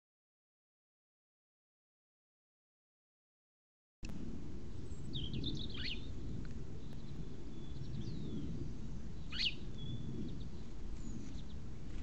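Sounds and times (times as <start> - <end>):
low outdoor rumble: 4.0 - 12.0
small birds chirping: 4.8 - 12.0
sharp sweeping bird call: 5.1 - 6.1, 9.3 - 10.1.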